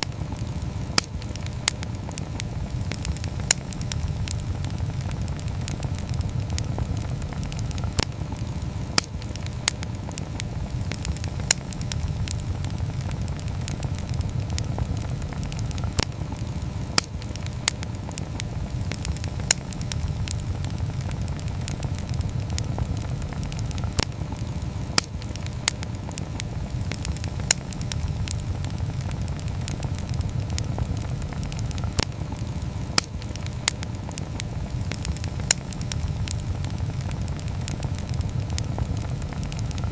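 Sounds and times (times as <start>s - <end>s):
fire crackles and pops: 0.0s - 39.9s
low rumble of flames: 0.0s - 39.9s.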